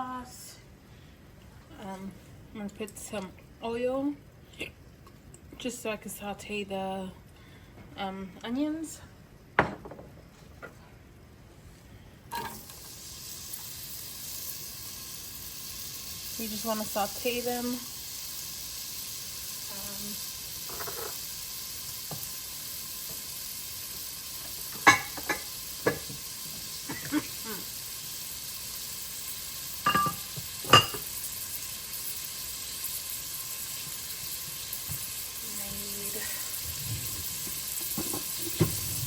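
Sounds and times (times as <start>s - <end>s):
onions sizzling in a pan: 12.3s - 39.0s.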